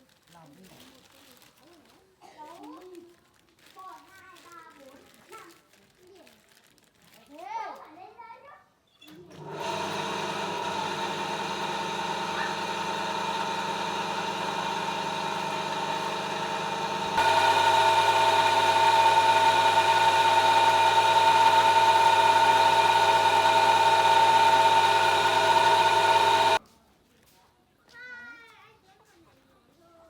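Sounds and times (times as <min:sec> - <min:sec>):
small engine running: 0:09.3 - 0:26.6.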